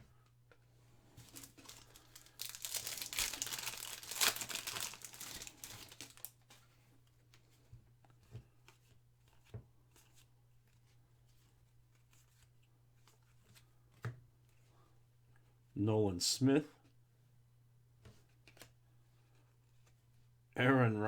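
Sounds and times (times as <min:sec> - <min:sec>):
foil wrapper crinkling: 0:01.2 - 0:06.4.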